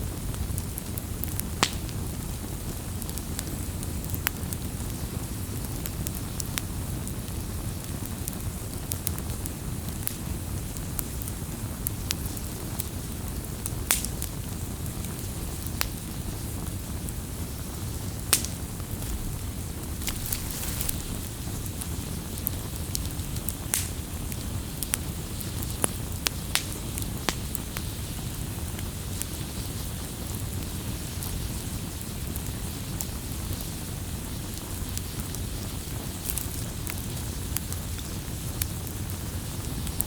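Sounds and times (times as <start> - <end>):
wood fire pops and snaps: 0.3 - 4.9, 5.6 - 40.0
low rush of burning: 15.9 - 27.6.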